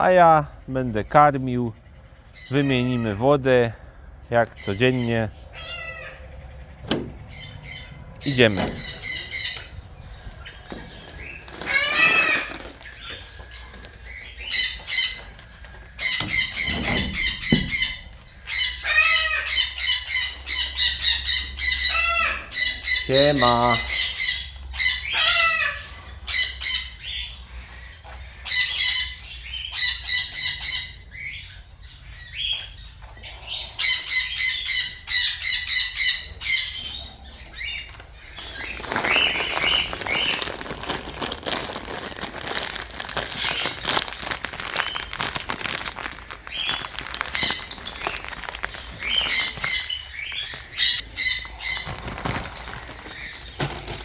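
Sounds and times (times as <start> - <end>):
parrots squawking: 1.8 - 3.4, 4.4 - 54.0
wings fluttering and rustling: 6.7 - 21.0, 36.8 - 54.0.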